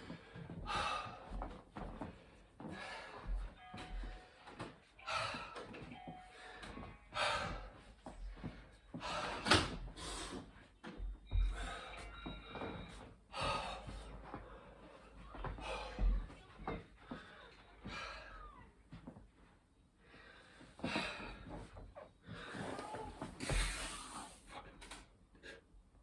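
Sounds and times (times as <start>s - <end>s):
man gasping breaths: 0.0s - 4.3s, 5.0s - 10.6s, 13.3s - 16.2s.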